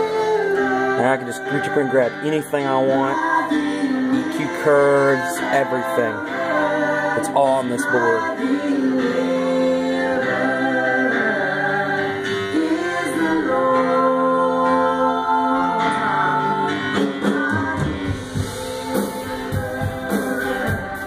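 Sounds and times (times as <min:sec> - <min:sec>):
worship singing over instruments: 0:00.0 - 0:21.0
drum hits: 0:17.3 - 0:21.0.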